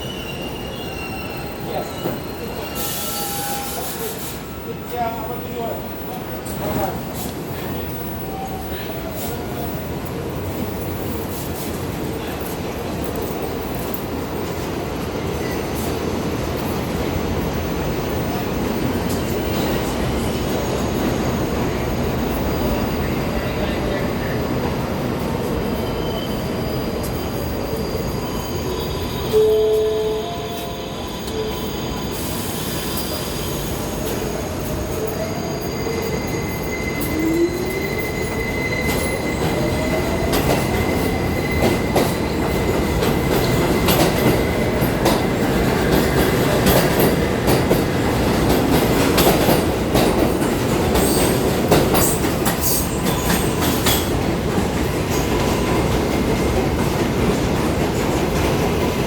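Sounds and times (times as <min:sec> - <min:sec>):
wheel squeal: 0:00.0 - 0:04.7.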